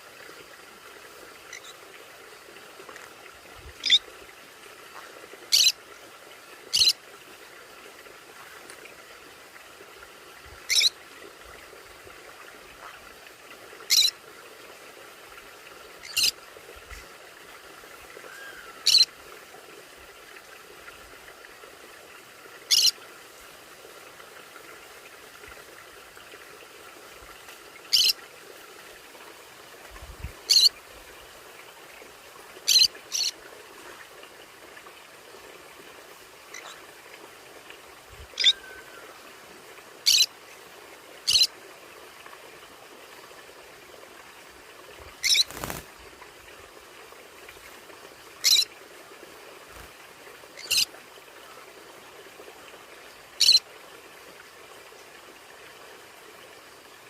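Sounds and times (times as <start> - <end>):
parrot high sharp calls: 38.4 - 38.8.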